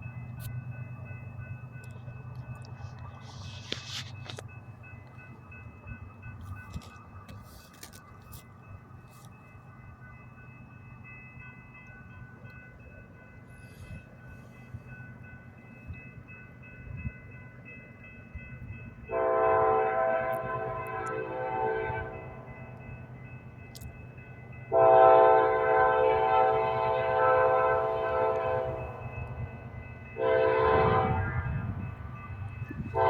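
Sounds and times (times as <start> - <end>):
train rumbling: 0.0 - 33.0
train air horn blast: 19.1 - 22.3, 24.7 - 28.8, 30.2 - 31.5.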